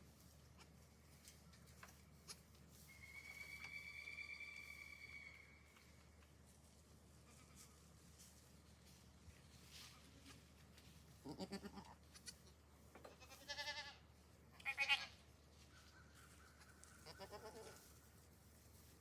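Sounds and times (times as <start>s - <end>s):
goats bleating: 11.2s - 12.4s, 13.2s - 14.0s, 14.6s - 15.2s, 17.0s - 17.8s.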